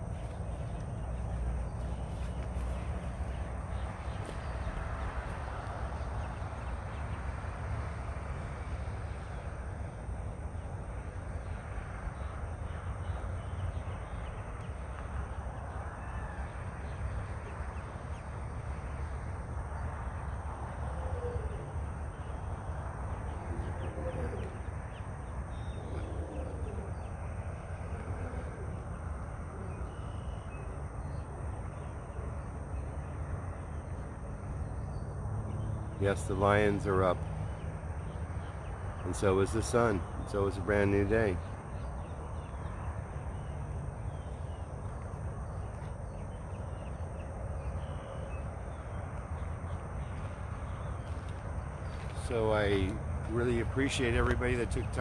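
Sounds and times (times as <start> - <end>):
birds cawing: 11.6 - 18.0, 20.7 - 32.5.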